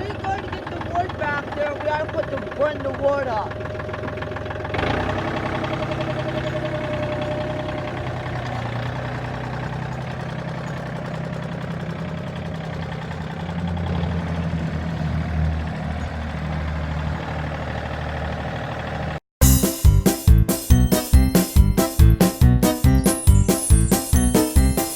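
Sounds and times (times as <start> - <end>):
tractor engine running: 0.0 - 24.9.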